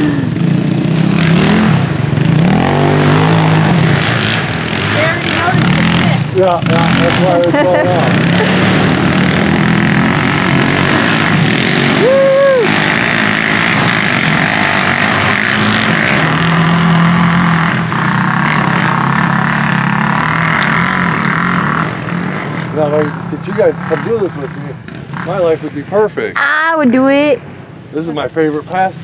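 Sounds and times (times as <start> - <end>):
vehicle engines passing: 0.0 - 29.0
rising and falling tone: 7.0 - 17.6.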